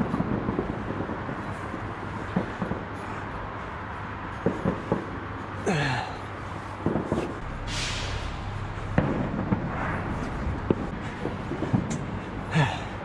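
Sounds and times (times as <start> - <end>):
fireworks popping and banging: 0.0 - 5.5, 6.7 - 12.7
background rumble: 4.8 - 13.0
short hiss: 7.6 - 8.5.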